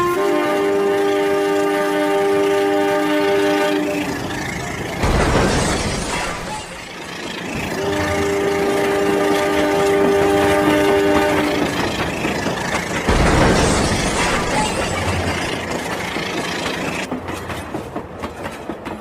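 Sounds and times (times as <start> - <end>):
toy train horn chord: 0.0 - 4.0, 7.8 - 11.6
rushing train noise: 0.0 - 19.0.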